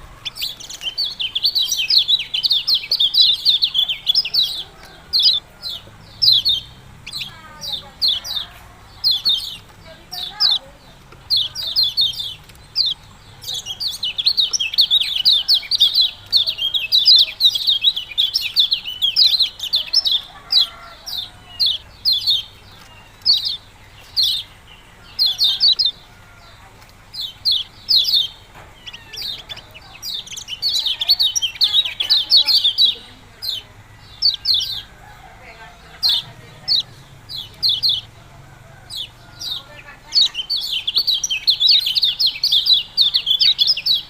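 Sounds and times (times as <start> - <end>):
bird chirping song: 0.0 - 44.0.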